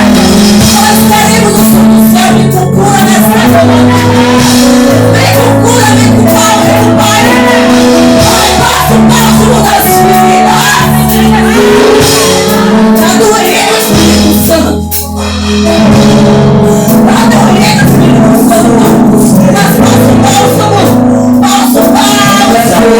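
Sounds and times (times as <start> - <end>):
live gospel band playing: 0.0 - 22.9
voices singing and shouting: 3.0 - 13.8.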